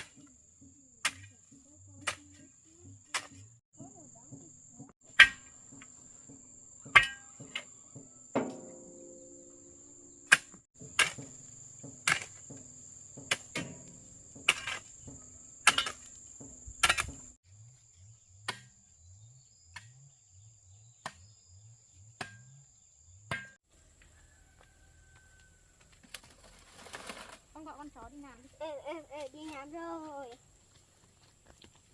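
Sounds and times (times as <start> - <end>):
sharp knocking strikes: 8.4 - 9.4.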